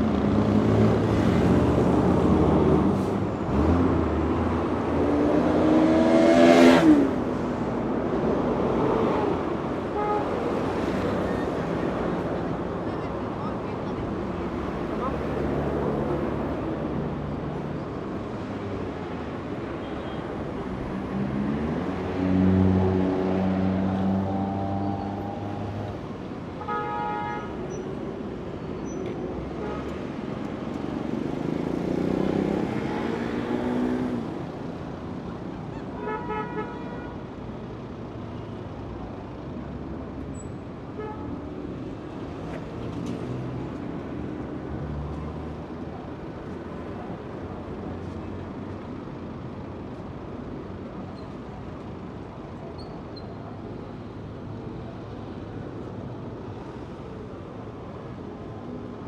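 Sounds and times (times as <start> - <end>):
heavy vehicle engines passing: 0.0 - 26.6, 27.6 - 36.0
road traffic noise: 0.0 - 59.0.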